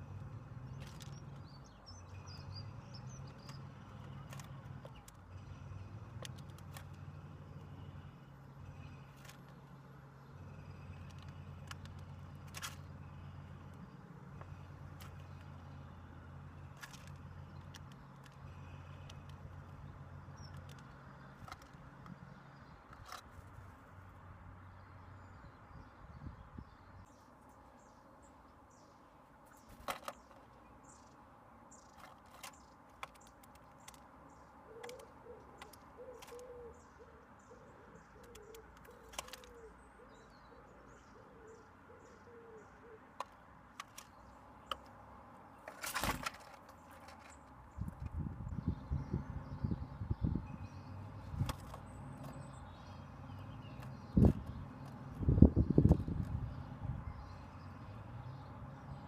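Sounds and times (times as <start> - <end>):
faint high bird chirping: 0.0 - 23.2, 46.8 - 59.0
birds tapping on a table: 29.5 - 37.0, 37.9 - 39.8
low wavering bird calls: 29.5 - 43.4.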